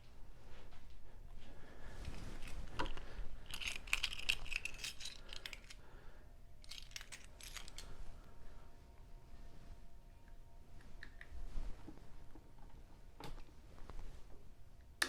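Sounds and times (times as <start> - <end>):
keys jingling on a keyring: 2.4 - 5.8, 6.6 - 7.9.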